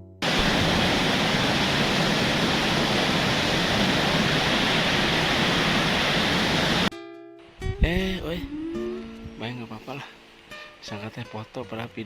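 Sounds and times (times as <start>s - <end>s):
waterfall rushing: 0.2s - 6.9s.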